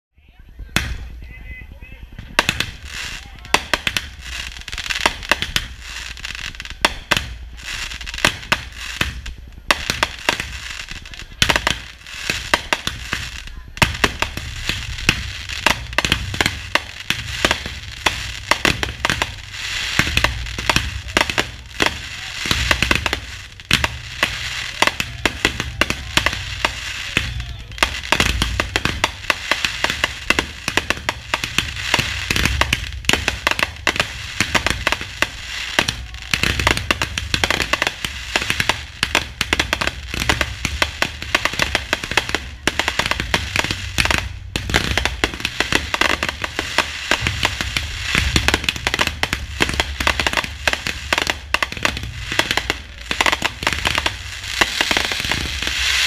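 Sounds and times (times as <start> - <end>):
fireworks bangs and crackles: 0.2 - 56.0
deep fireworks booms: 0.3 - 56.0.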